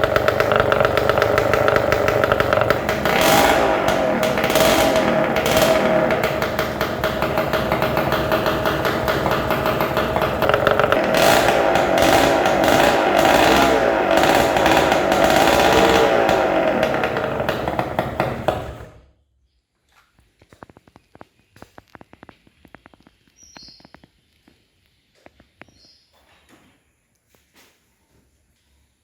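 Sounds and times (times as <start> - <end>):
two-stroke engine running: 0.0 - 19.0.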